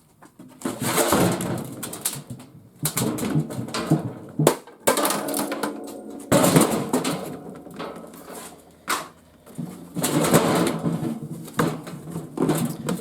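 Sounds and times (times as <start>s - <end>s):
plastic cracking and clattering: 0.2s - 13.0s
plastic housing grinding and creaking: 6.2s - 13.0s.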